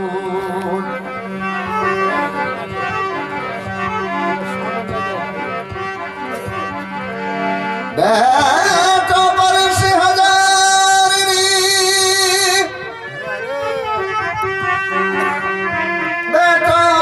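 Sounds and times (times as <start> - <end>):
harmonium melody: 0.0 - 17.0
person singing devotional song: 8.0 - 12.8, 16.2 - 17.0.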